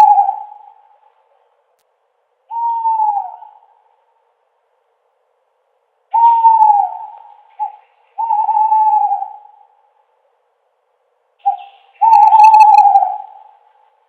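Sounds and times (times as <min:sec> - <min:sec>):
owl hooting: 0:00.0 - 0:01.2, 0:02.5 - 0:04.0, 0:06.1 - 0:10.0, 0:11.4 - 0:14.0.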